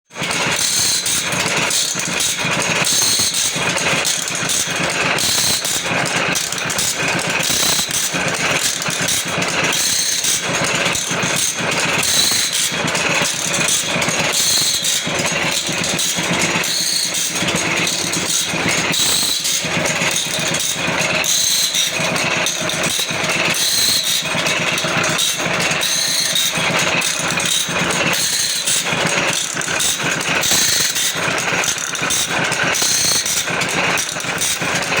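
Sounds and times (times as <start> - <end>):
rapid mechanical clatter: 0.0 - 35.0
machine motor hum: 0.5 - 35.0.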